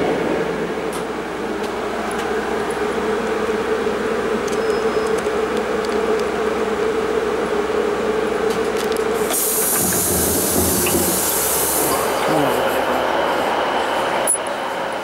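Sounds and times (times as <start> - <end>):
standing train hum: 0.0 - 15.0
bright hiss: 9.2 - 12.3.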